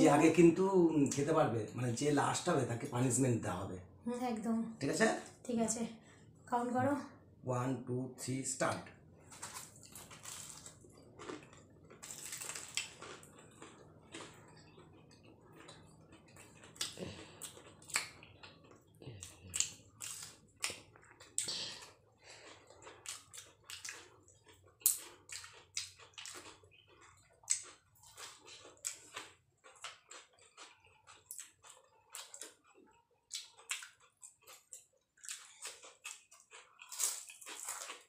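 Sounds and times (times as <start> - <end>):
crunching fried pastry: 9.2 - 38.0.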